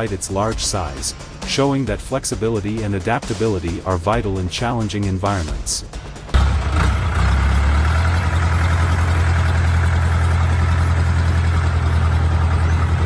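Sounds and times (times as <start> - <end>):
diesel engine running: 6.4 - 13.0.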